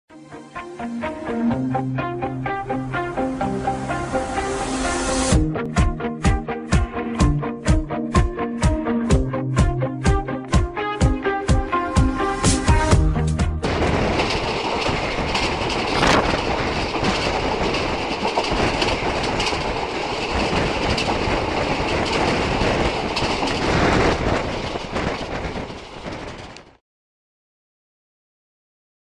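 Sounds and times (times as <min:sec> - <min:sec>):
train wheels clicking over rail joints: 0:12.5 - 0:26.8.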